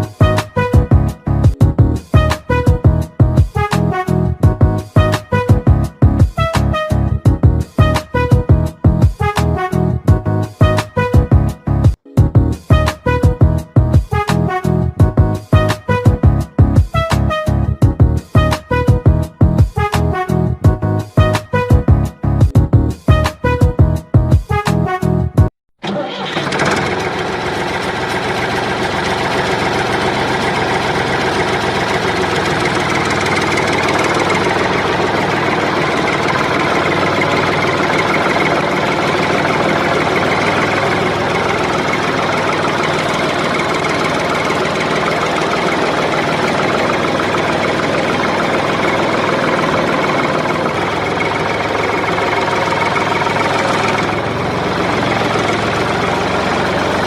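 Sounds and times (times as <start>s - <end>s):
engine running steadily: 25.8s - 57.0s.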